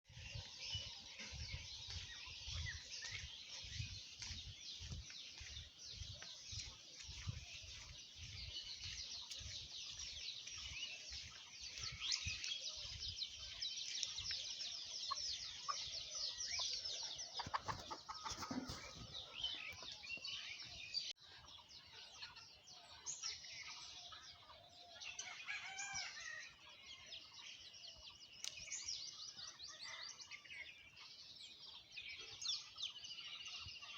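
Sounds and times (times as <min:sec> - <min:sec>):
small birds chirping: 0:00.1 - 0:33.9
chickens clucking: 0:00.2 - 0:20.7.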